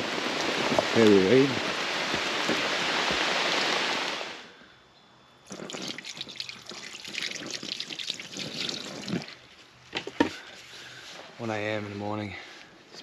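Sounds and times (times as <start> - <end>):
heavy rain hissing: 0.0 - 4.6
water dripping and splashing: 5.5 - 9.6.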